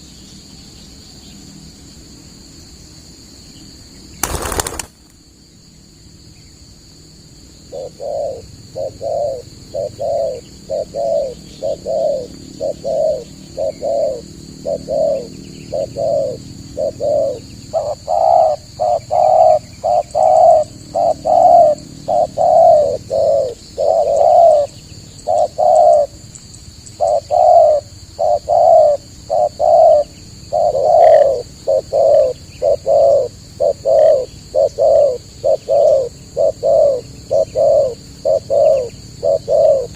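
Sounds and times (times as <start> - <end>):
dove cooing: 7.7 - 26.2, 27.0 - 39.9.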